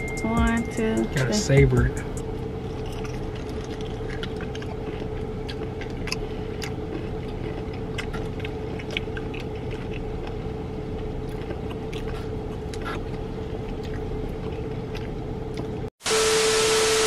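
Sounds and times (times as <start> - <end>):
low hum inside a car: 0.0 - 17.0
people chewing crunchy food: 2.4 - 15.9.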